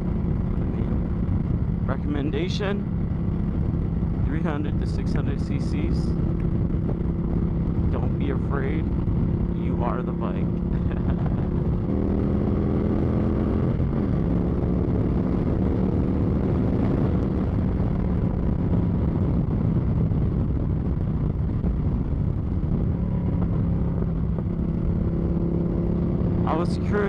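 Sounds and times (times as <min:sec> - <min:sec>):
motorcycle engine running: 0:00.0 - 0:27.0
wind rumble on microphone: 0:00.0 - 0:27.0.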